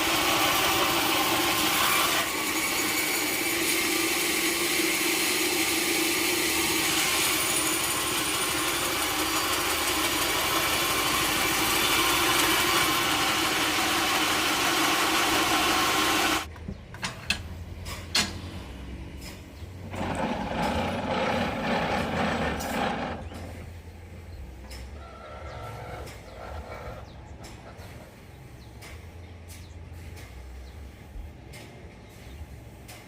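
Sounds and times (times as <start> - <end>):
sawmill machinery running: 0.0 - 16.5, 18.1 - 29.4.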